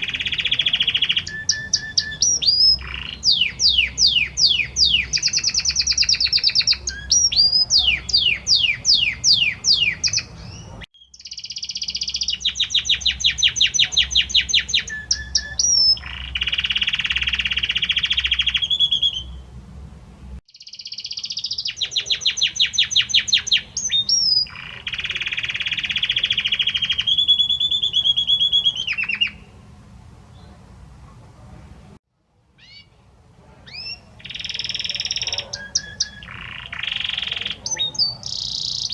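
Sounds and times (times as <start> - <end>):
canary singing trills: 0.0 - 19.6, 20.5 - 29.7, 32.6 - 38.9.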